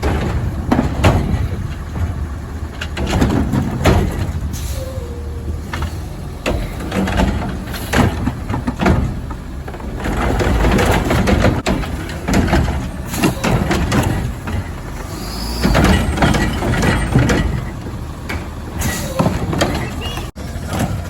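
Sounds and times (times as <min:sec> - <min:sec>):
garbage truck engine rumble: 0:00.0 - 0:21.0
metal clanks and bangs: 0:00.0 - 0:21.0
high squeal: 0:15.1 - 0:16.2.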